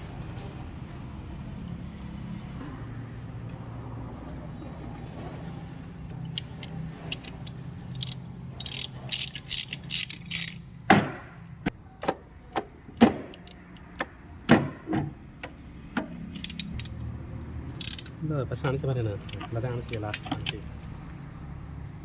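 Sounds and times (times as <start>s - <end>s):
metal tools clinking and knocking: 6.2s - 10.7s, 16.2s - 17.0s.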